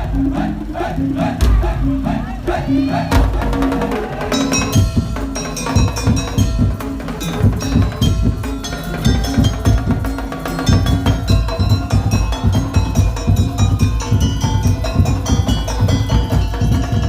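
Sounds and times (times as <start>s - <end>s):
fast drumming on large drums: 0.0s - 17.0s
wooden slit drums: 3.1s - 17.0s
ringing metal bell tones: 4.3s - 17.0s.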